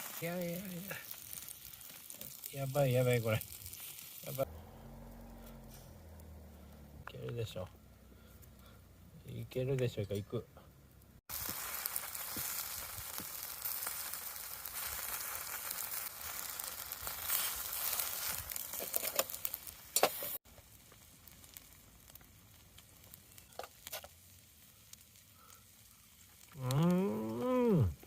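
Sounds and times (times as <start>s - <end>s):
chicken sizzling in a pan: 0.0s - 4.5s, 11.3s - 28.0s.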